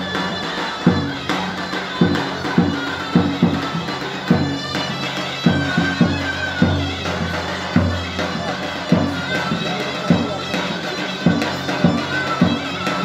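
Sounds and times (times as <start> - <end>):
large bass drum beats: 0.0 - 13.0
reedy wind instrument melody: 0.0 - 13.0.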